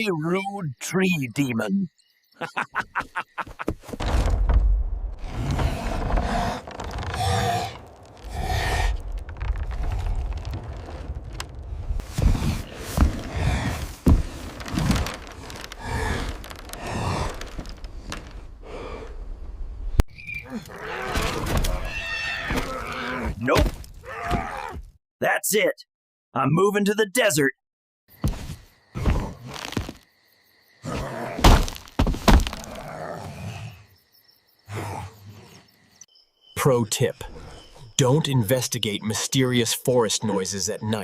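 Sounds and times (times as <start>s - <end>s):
loud thuds: 3.6s - 18.8s
crashing noise: 3.8s - 18.6s
breaking and cracking: 5.9s - 12.0s, 14.0s - 18.5s
person breathing heavily: 7.2s - 9.0s, 12.3s - 14.4s, 18.6s - 19.2s.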